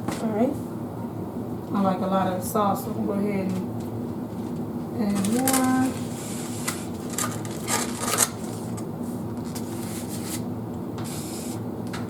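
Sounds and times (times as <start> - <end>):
steady low hum: 0.0 - 12.0
scraping and rustling handling: 4.3 - 8.8.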